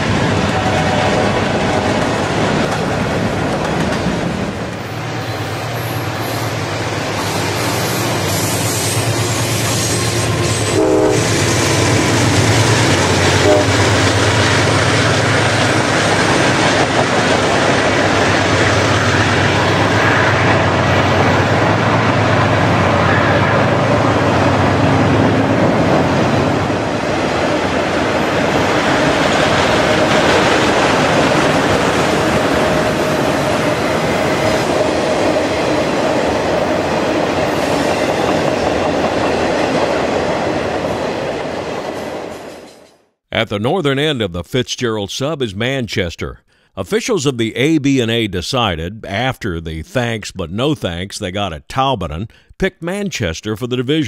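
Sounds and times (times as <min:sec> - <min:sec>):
diesel locomotive droning: 0:00.0 - 0:39.5.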